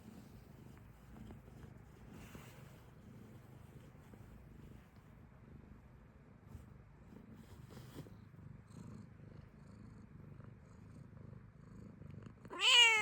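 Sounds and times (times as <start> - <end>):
cat purring: 0.0 - 13.0
cat meowing loudly: 12.5 - 13.0.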